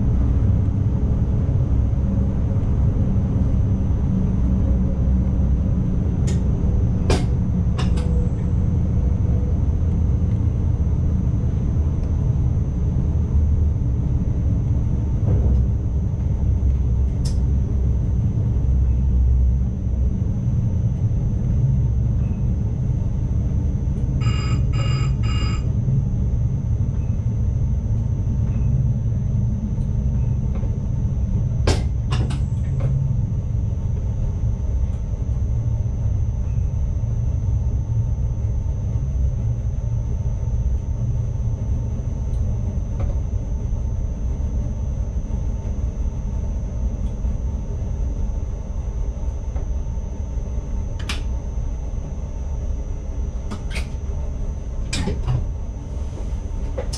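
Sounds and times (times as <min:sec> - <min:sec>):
electric train rumbling: 0:00.0 - 0:56.9
short electronic beeps: 0:24.2 - 0:25.7
thin high whine: 0:24.2 - 0:25.8.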